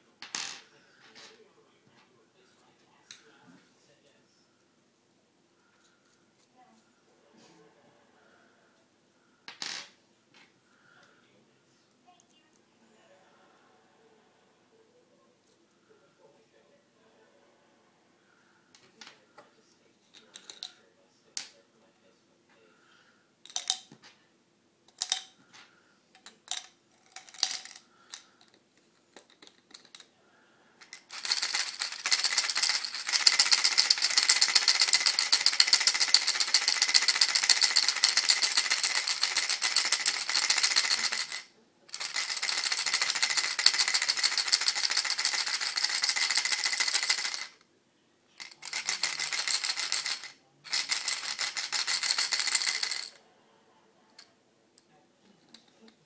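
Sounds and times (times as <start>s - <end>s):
screws rattling in plastic bottle: 26.2s - 30.0s, 30.8s - 47.6s, 48.4s - 53.1s.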